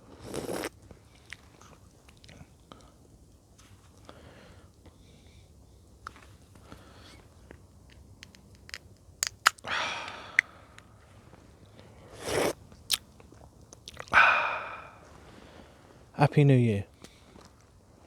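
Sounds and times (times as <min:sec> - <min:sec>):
sharp clicks: 0:08.2 - 0:10.2
person breathing out: 0:09.6 - 0:10.8, 0:14.1 - 0:15.0.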